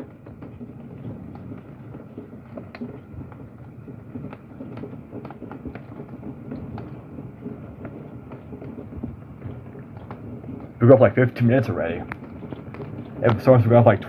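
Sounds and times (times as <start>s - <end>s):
hailstones hitting window: 0.0s - 14.0s
heavy rain: 4.2s - 14.0s.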